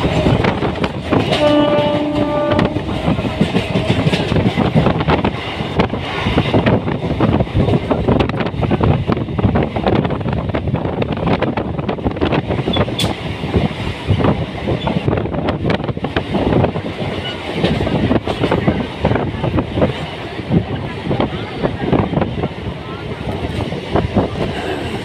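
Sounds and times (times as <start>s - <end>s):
train wheels rattling and knocking: 0.0s - 25.0s
wind buffeting microphone: 0.0s - 25.0s.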